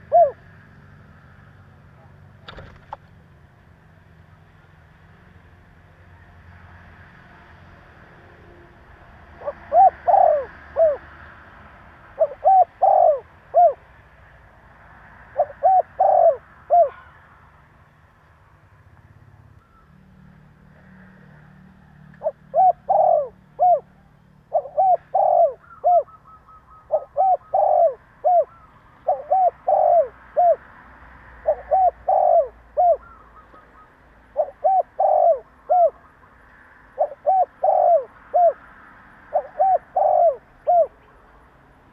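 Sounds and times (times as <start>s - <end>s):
dove cooing: 0.0s - 0.5s, 9.4s - 11.2s, 12.1s - 13.8s, 15.4s - 17.2s, 22.0s - 30.7s, 31.4s - 36.2s, 37.0s - 38.6s, 39.2s - 41.2s.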